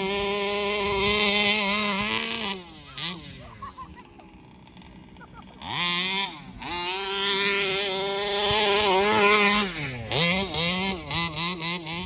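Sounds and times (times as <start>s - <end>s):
two-stroke engine revving: 0.0s - 12.0s.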